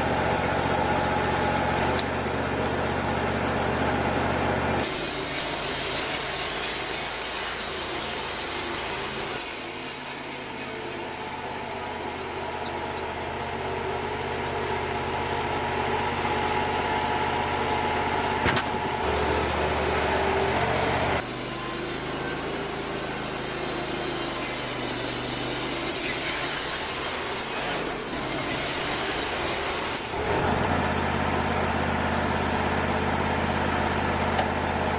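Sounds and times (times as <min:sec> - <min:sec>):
sawmill engine droning: 0:00.0 - 0:34.9
band blade cutting boards: 0:04.8 - 0:14.3, 0:18.3 - 0:31.0.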